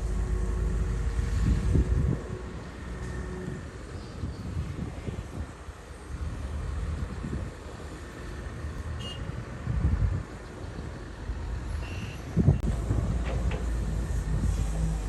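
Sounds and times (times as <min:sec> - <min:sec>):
bulldozer diesel engine running: 0:00.0 - 0:04.0, 0:10.5 - 0:15.0.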